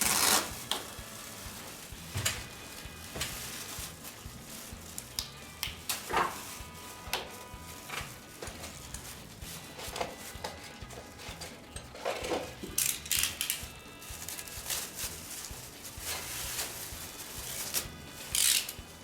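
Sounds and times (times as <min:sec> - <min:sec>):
faint background music: 0:00.0 - 0:19.0
hard parts clicking and scraping: 0:04.9 - 0:15.4, 0:16.0 - 0:19.0.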